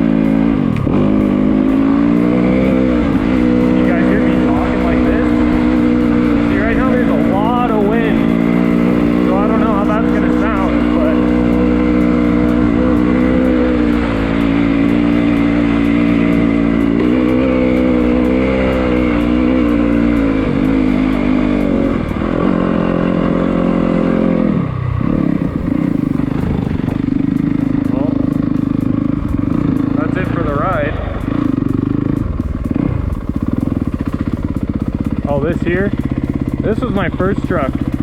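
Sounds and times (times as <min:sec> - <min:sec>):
motorcycle engine revving: 0:00.0 - 0:38.0
wind on microphone: 0:25.0 - 0:27.4.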